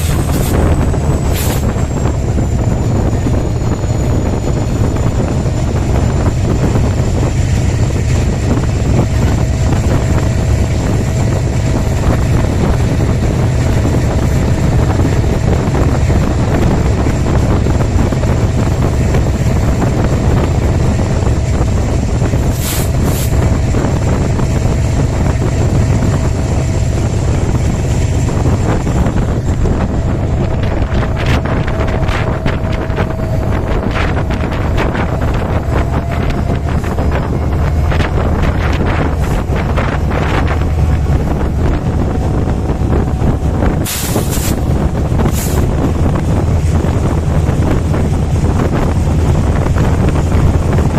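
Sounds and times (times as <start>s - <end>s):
train rumbling past: 0.0s - 50.9s
wind buffeting microphone: 0.0s - 50.9s.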